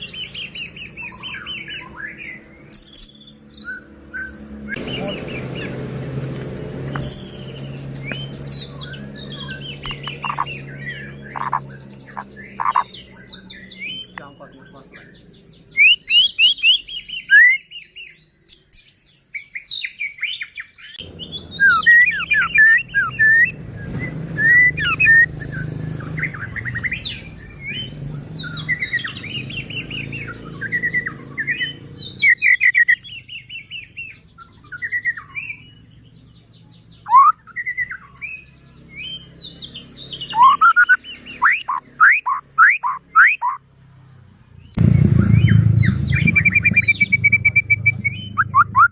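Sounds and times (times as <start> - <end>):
bird whistling song: 0.0 - 14.4, 15.0 - 43.6, 44.7 - 48.9
low hum: 44.8 - 48.9.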